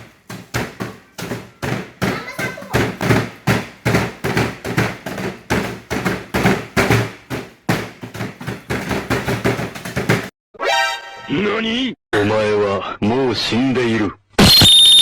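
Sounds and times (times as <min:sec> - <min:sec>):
pestle pounding in bowl: 0:00.0 - 0:10.3.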